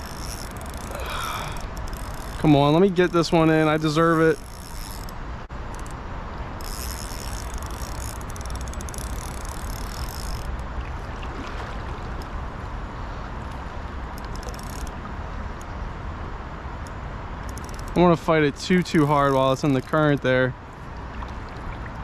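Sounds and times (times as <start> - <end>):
high buzzing ticking: 0.0 - 10.7, 16.8 - 20.3.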